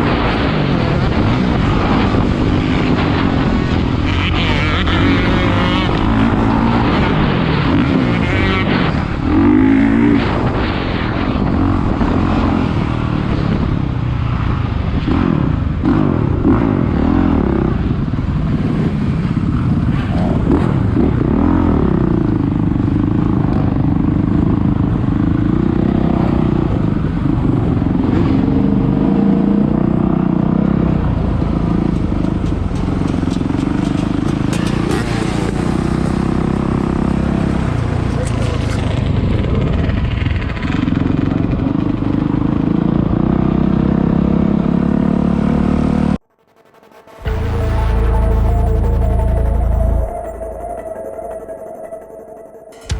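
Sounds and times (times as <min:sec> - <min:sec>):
motocross bike engine revving: 0:00.0 - 0:10.5.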